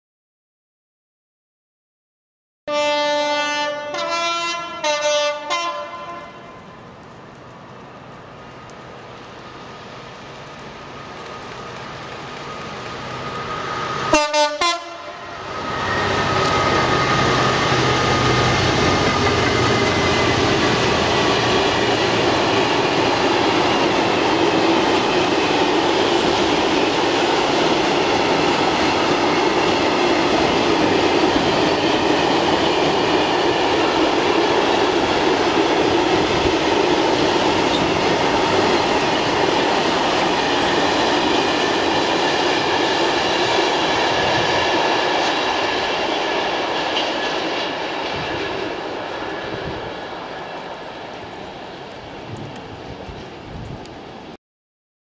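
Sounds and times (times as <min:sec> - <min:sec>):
two-tone locomotive horn: 0:02.7 - 0:06.7, 0:14.0 - 0:18.2
diesel locomotive engine: 0:02.7 - 0:54.4
freight train wheels on rails: 0:03.7 - 0:54.4.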